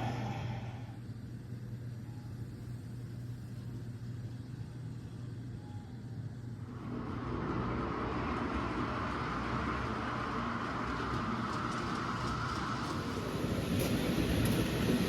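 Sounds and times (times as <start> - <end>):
model train rumbling on track: 6.8 - 15.0.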